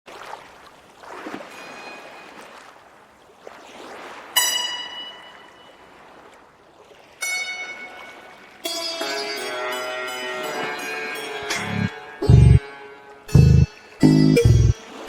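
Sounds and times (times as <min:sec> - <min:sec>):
ambient music: 0:11.4 - 0:15.0.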